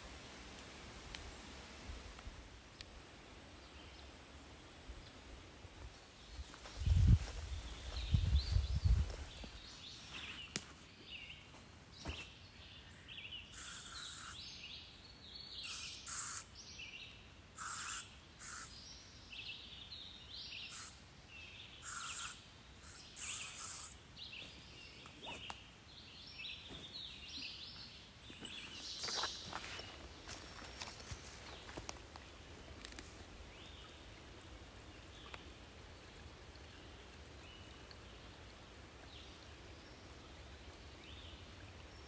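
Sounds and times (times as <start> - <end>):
birds singing: 6.3 - 30.7.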